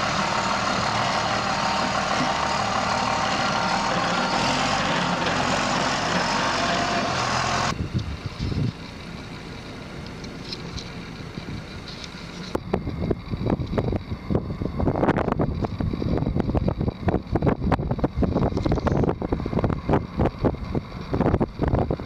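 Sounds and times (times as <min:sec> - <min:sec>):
tow tractor engine running: 0:00.0 - 0:22.0
wind-like rumble: 0:07.7 - 0:22.0.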